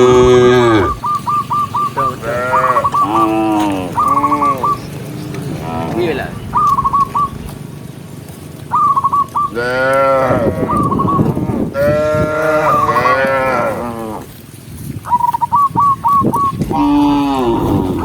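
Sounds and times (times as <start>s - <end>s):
cattle mooing: 0.0s - 1.0s, 2.0s - 6.4s, 9.5s - 14.4s, 16.7s - 18.0s
short high chirping calls: 0.8s - 5.0s, 6.4s - 7.6s, 8.7s - 9.6s, 10.7s - 11.3s, 15.0s - 17.2s.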